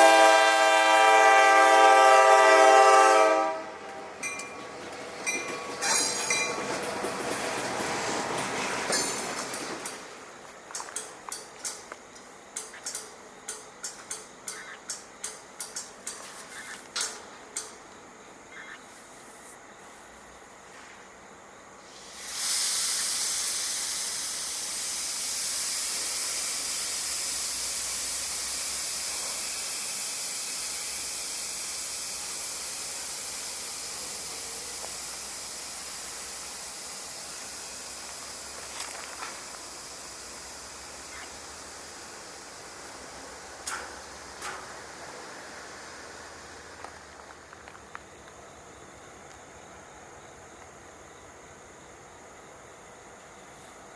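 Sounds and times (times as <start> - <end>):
loud high hiss: 0.0 - 4.2, 21.2 - 47.7
train wheels clicking on rail joints: 3.8 - 18.2, 21.9 - 49.6.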